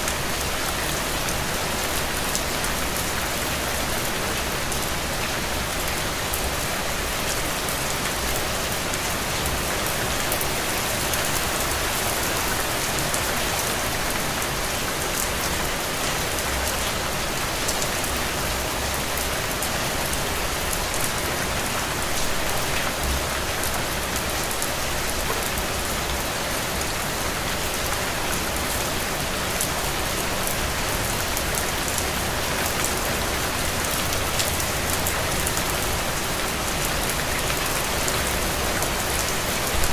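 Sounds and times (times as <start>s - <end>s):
heavy rain on open ground: 0.0s - 39.9s.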